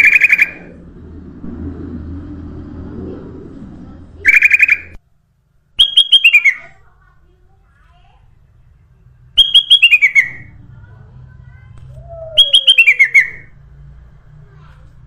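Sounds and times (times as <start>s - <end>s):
low background rumble: 0.0s - 5.9s, 6.5s - 15.0s
bulbul whistled call: 4.3s - 5.0s, 5.8s - 6.7s, 9.4s - 10.5s, 12.1s - 13.5s.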